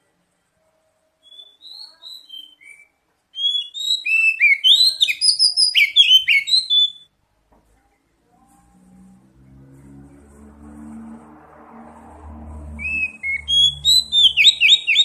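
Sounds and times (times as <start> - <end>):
bird whistling and chirping: 1.2 - 7.1, 12.8 - 15.0.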